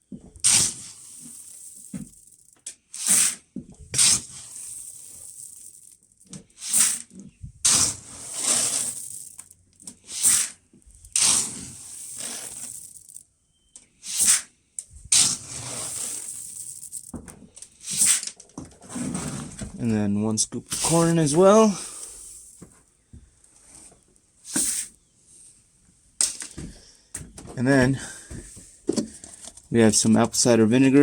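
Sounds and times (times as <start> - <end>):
dry feed poured into a bucket: 0.4 - 3.4, 4.0 - 6.0, 6.6 - 7.1, 7.7 - 13.2, 14.1 - 14.4, 15.2 - 17.2, 17.8 - 18.2, 20.7 - 22.6, 24.5 - 24.9.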